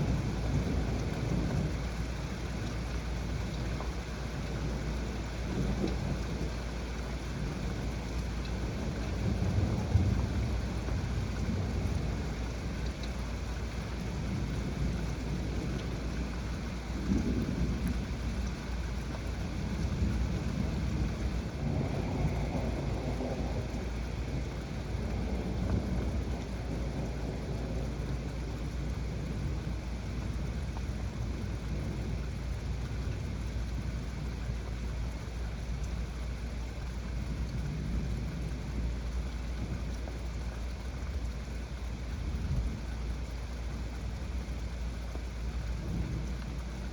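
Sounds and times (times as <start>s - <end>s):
heavy rain falling: 0.0s - 46.9s
low rumble of thunder: 0.0s - 46.9s.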